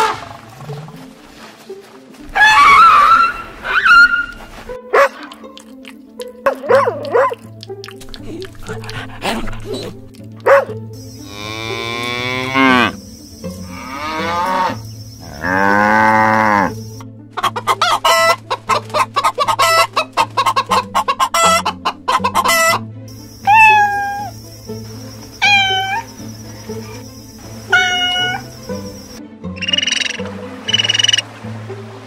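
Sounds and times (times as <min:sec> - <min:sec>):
chickens clucking: 0:06.5 - 0:31.2
cow mooing: 0:11.2 - 0:13.0, 0:13.6 - 0:16.8
cat meowing: 0:23.4 - 0:24.3, 0:25.4 - 0:26.0, 0:27.7 - 0:28.4.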